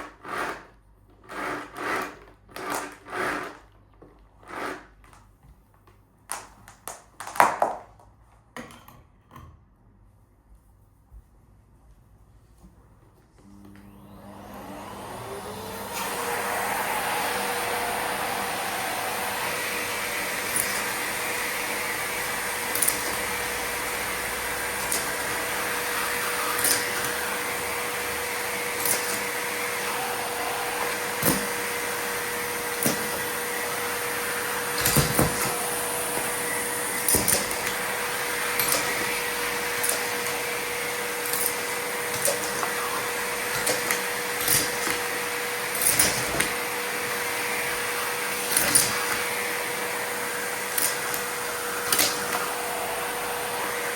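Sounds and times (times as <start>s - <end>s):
vacuum cleaner humming: 1.3s - 3.6s, 13.3s - 53.9s
plastic pieces clicking and rattling: 6.3s - 8.0s.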